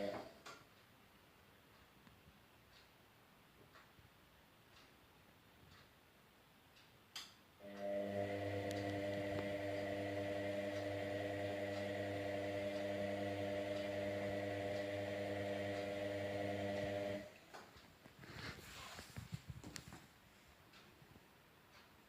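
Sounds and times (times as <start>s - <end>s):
steady electrical hum: 0.0s - 1.6s, 4.2s - 20.8s.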